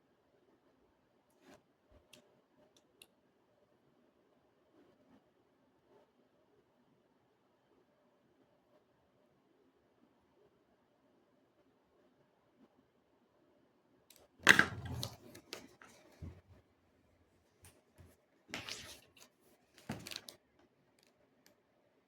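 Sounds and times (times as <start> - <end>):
objects clattering and clicking: 14.4 - 16.6, 18.5 - 20.4.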